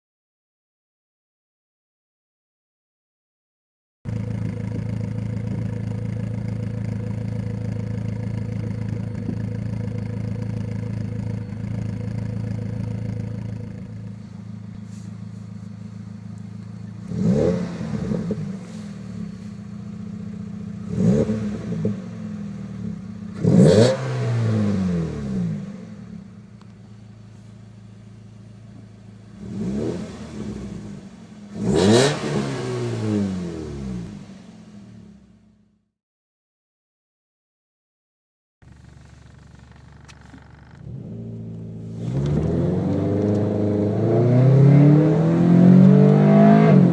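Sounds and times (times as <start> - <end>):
car engine revving: 4.1 - 35.6, 38.7 - 46.9
car engine idling: 4.1 - 35.9, 38.6 - 44.0.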